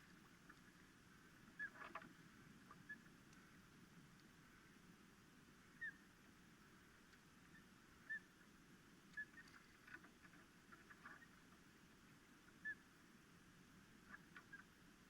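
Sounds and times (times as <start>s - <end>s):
faint clicks: 0.0s - 4.8s, 6.9s - 7.7s, 9.0s - 12.6s, 13.7s - 14.8s
steady hiss: 0.0s - 15.0s.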